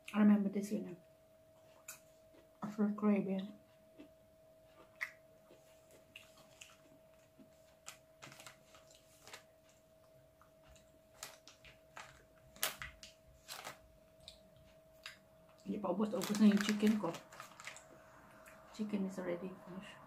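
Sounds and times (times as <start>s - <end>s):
faint steady hum: 0.0s - 20.0s
person chewing: 3.9s - 9.4s, 10.5s - 15.6s.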